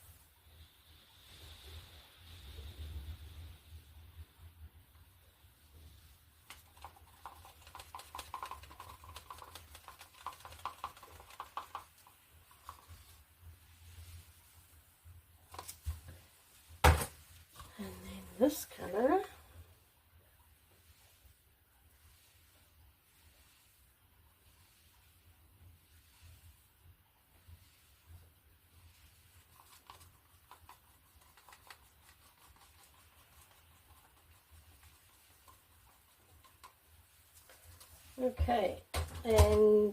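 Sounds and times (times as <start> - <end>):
paint container clicks and taps: 6.5 - 13.0.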